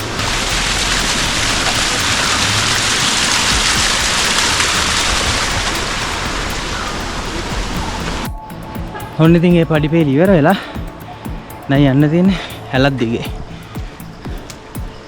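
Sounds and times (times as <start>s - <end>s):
water trickling down rock: 0.0s - 8.3s.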